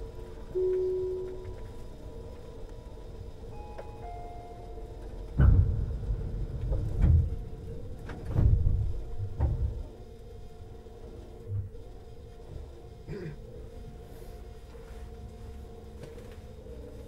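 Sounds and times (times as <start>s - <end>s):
train low rumble: 0.0s - 17.0s
heavy low thumps: 5.4s - 9.8s.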